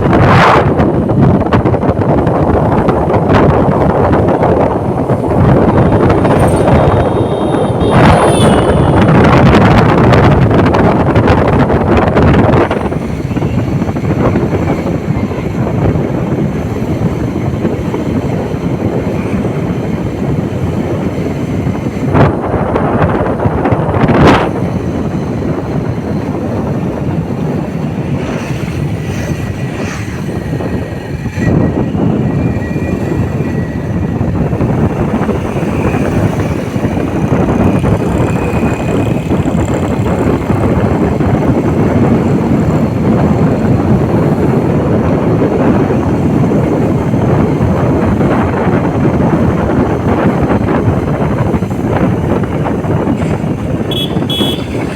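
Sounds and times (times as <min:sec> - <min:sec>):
wind roaring over microphone: 0:00.0 - 0:54.9.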